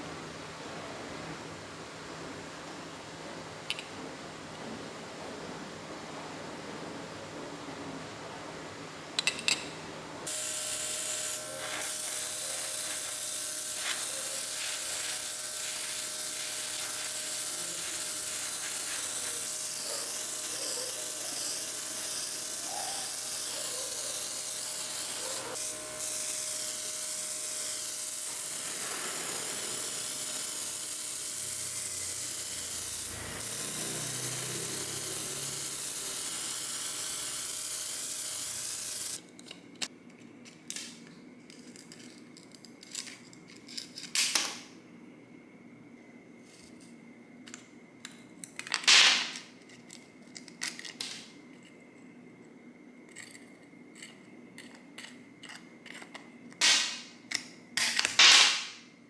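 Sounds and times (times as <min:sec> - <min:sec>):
workshop tool hissing: 0:10.3 - 0:39.2, 0:56.6 - 0:57.1.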